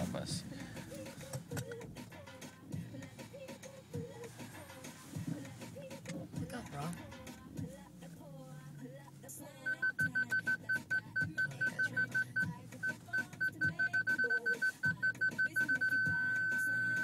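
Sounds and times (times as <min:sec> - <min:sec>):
faint background music: 0:00.0 - 0:17.0
rapid high electronic beeps: 0:09.7 - 0:17.0.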